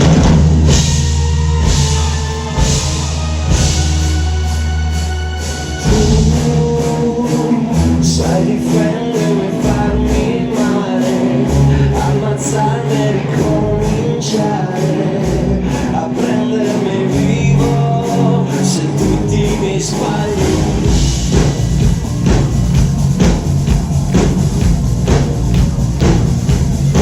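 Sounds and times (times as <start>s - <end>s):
live rock band: 0.0s - 27.0s
many voices singing: 5.7s - 22.4s.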